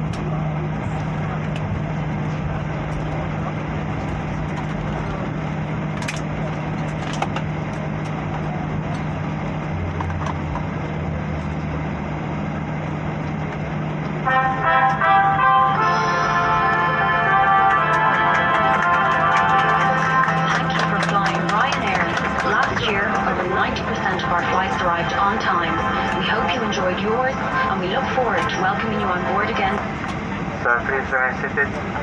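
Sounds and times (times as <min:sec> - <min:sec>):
jet cabin engine and airflow rush: 0:00.0 - 0:32.0
short tune over speakers: 0:14.3 - 0:21.4.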